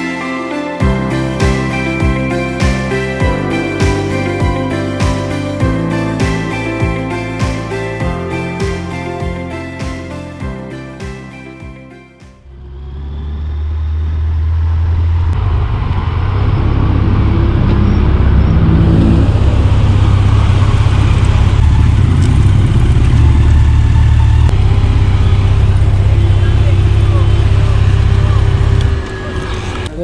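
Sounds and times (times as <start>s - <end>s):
background music: 0.0s - 12.4s
motorcycle engine rumble: 0.8s - 30.0s.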